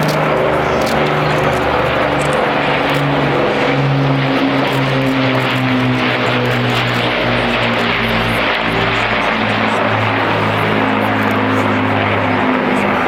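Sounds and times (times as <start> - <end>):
propeller aircraft engines droning: 0.0 - 13.0.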